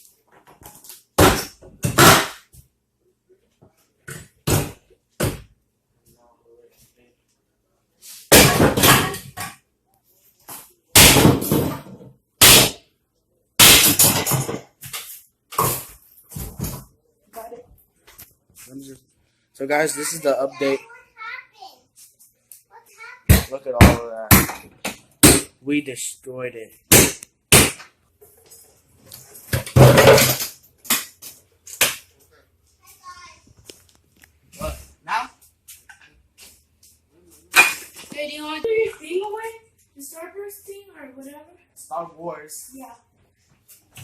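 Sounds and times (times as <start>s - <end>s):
wooden drawers being smashed: 8.3s - 9.6s, 11.0s - 12.8s, 13.6s - 15.0s, 29.5s - 31.2s.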